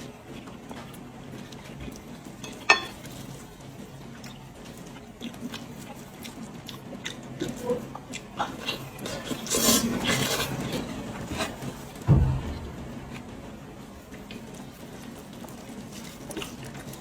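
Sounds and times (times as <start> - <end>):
chewing and tearing meat: 0.0 - 12.0, 14.5 - 17.0
heavy low thump: 12.1 - 14.6.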